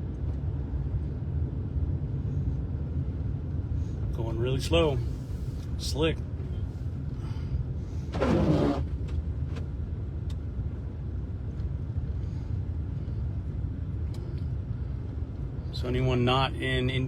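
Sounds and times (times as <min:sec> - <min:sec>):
car engine and tyres rumbling: 0:00.0 - 0:17.0
windshield wiper scrape: 0:08.1 - 0:09.0.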